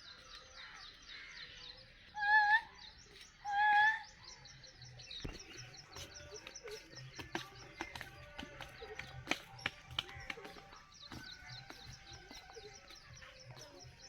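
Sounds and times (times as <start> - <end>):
loud clear bird calls: 0.0 - 14.0.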